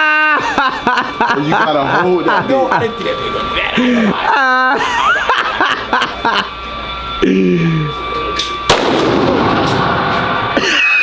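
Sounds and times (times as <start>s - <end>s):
gunshot with reverberant tail: 8.7s - 10.5s.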